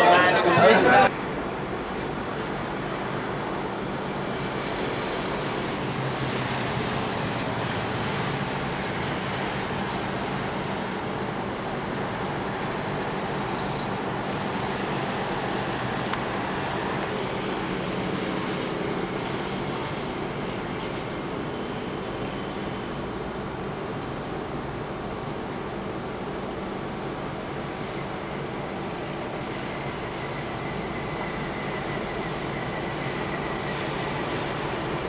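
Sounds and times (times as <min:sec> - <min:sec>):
vehicle road noise: 0:00.0 - 0:35.0.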